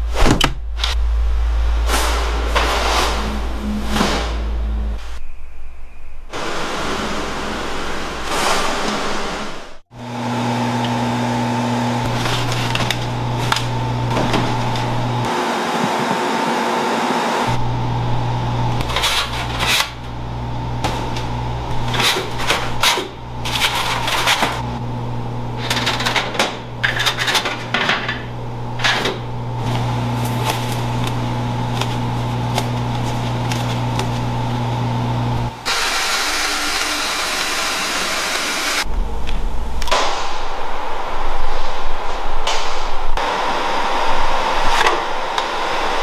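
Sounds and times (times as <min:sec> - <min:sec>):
steady motor hum: 0:09.9 - 0:39.8.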